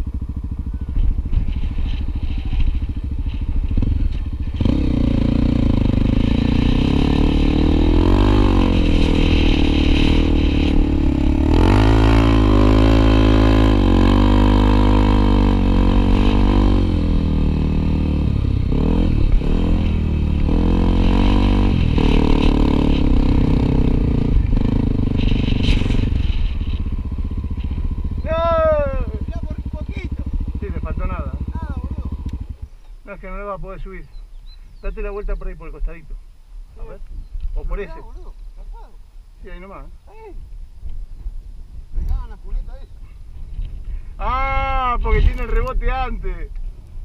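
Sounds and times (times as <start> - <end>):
motorcycle engine running: 0.0 - 35.6.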